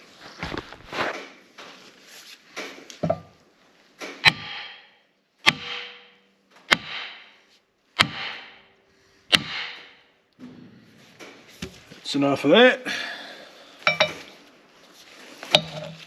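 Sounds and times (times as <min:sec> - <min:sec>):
hammer striking metal: 0:04.2 - 0:07.3, 0:08.0 - 0:08.7, 0:09.3 - 0:10.0, 0:13.9 - 0:14.2, 0:15.6 - 0:16.0.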